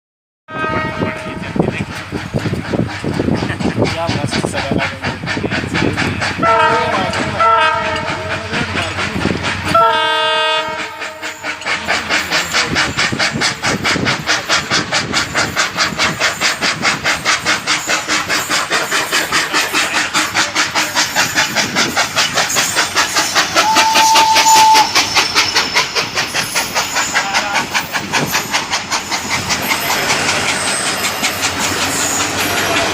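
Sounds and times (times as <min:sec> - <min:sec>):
train horn: 0:00.5 - 0:01.6, 0:06.4 - 0:08.3, 0:09.7 - 0:11.7, 0:23.6 - 0:24.9
train wheels clickety-clack: 0:00.7 - 0:32.9.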